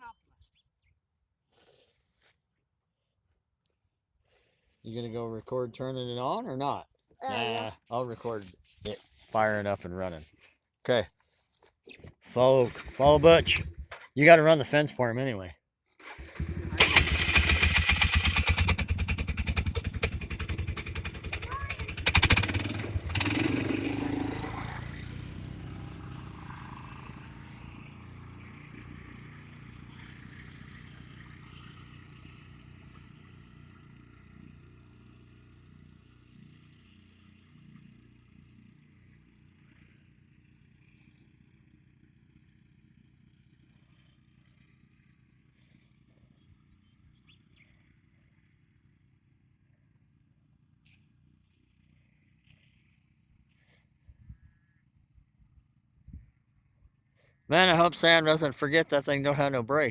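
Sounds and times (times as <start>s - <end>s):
atv engines pulling away: 7.2s - 8.4s, 9.4s - 10.2s, 12.3s - 15.0s, 16.0s - 41.6s, 57.5s - 59.9s.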